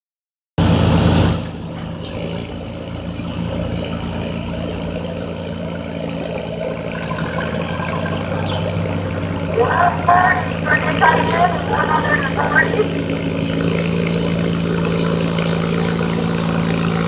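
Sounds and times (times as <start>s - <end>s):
garden tractor engine droning: 0.6s - 17.0s.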